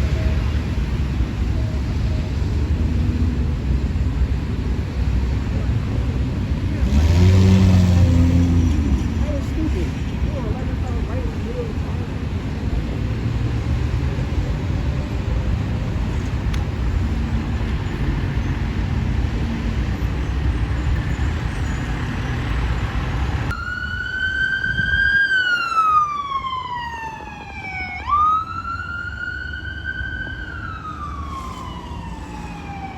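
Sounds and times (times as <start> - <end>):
road and engine rumble: 0.0 - 32.9
emergency siren wailing: 23.5 - 32.9
siren blasts: 23.5 - 32.9.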